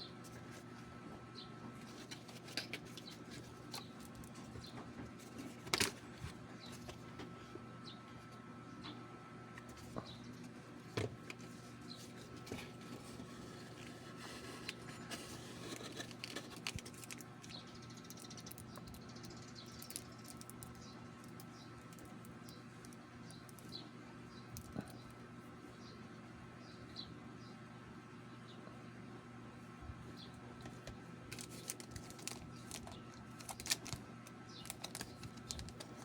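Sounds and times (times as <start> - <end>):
low steady hum: 0.0 - 36.0
cards and packaging rustling: 1.7 - 7.4, 11.2 - 19.0, 30.7 - 36.0.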